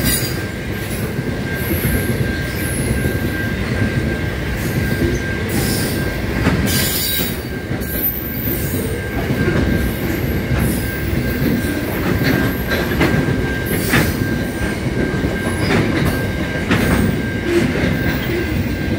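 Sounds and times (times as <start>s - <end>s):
train wagons rumbling: 0.0s - 18.9s
wheels clacking over rail joints: 4.8s - 18.9s.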